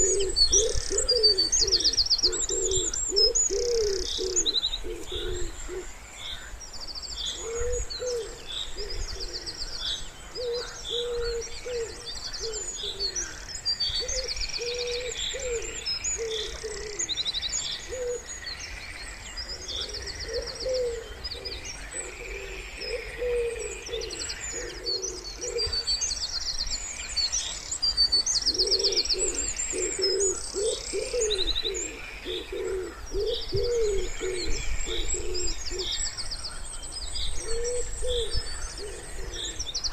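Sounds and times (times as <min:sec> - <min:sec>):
wood pigeons cooing: 0:00.0 - 0:06.0, 0:07.3 - 0:13.4, 0:14.0 - 0:17.2, 0:17.8 - 0:18.3, 0:19.5 - 0:26.0, 0:28.0 - 0:36.0, 0:37.3 - 0:39.9
songbirds chirping and trilling: 0:00.0 - 0:39.9.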